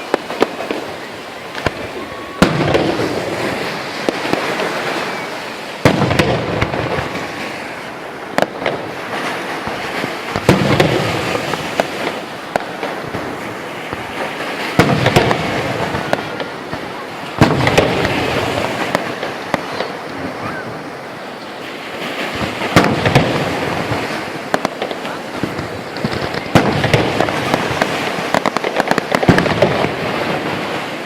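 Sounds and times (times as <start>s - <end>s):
small firework pops: 0.0s - 3.2s, 8.4s - 13.2s, 13.8s - 20.3s, 22.2s - 30.0s
firework bangs: 0.0s - 31.0s
firework crackling: 0.0s - 31.0s.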